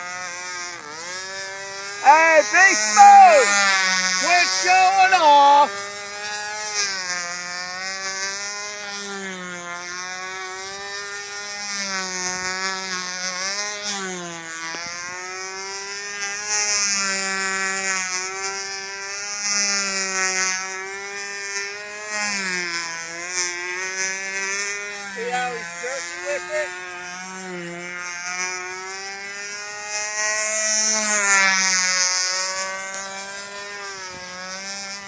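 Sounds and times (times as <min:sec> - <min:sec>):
model plane engine buzzing: 0:00.0 - 0:35.0.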